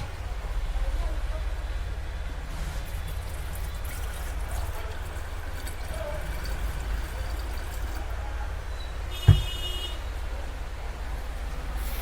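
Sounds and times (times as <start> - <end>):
water pouring into kettle: 2.4 - 8.2
sharp knock: 9.3 - 9.6.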